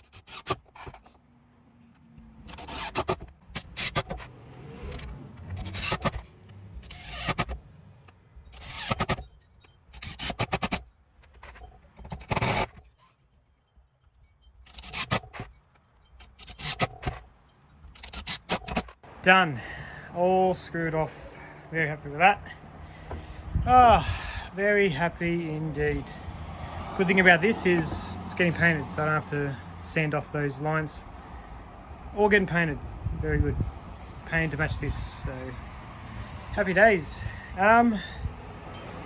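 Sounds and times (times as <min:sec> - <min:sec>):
power drill driving screws: 0:02.4 - 0:06.2, 0:06.8 - 0:07.6, 0:08.5 - 0:09.2, 0:12.0 - 0:12.8, 0:14.7 - 0:15.4.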